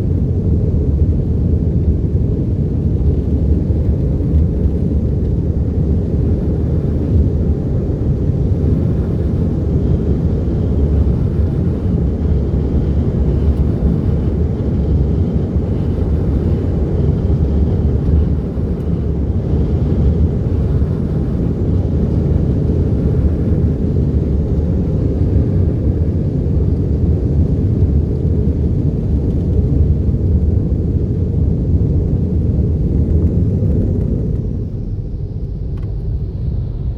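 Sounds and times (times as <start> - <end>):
car wash machinery rumble: 33.8 - 36.9.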